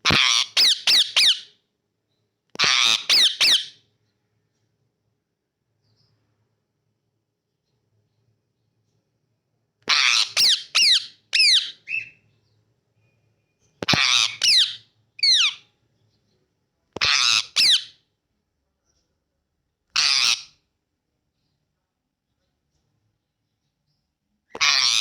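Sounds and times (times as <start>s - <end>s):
parrot screeching: 0.0s - 1.5s, 2.6s - 3.8s, 9.9s - 12.1s, 13.8s - 15.6s, 17.0s - 18.0s, 20.0s - 20.5s, 24.6s - 25.0s.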